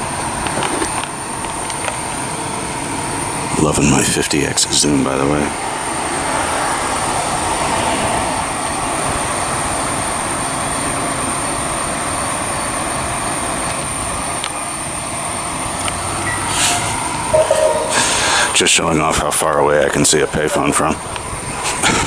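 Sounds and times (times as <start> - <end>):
train cars running by: 5.4 - 17.8
high whine: 16.2 - 18.7.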